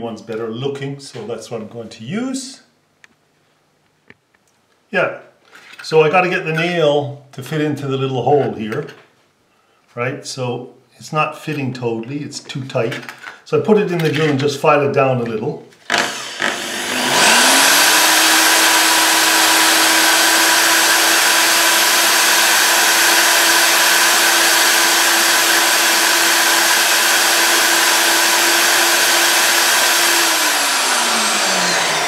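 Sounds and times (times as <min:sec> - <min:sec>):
electric drill motor spinning: 0:15.9 - 0:32.0.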